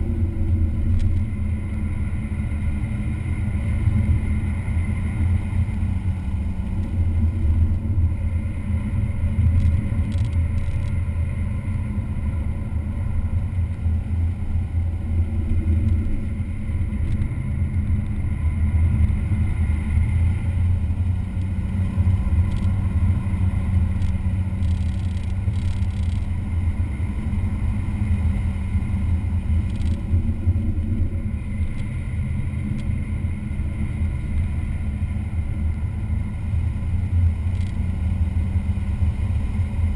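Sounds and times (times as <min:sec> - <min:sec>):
race car engine and road noise: 0:00.0 - 0:39.9.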